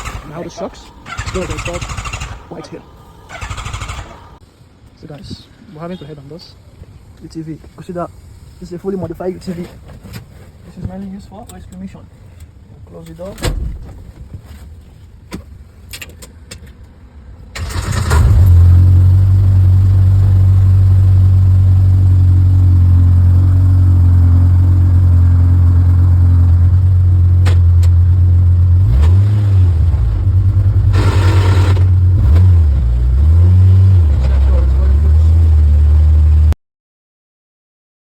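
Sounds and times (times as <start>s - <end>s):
rushing noise: 0.0s - 4.5s
vehicle engine droning: 0.0s - 4.5s, 17.6s - 36.6s.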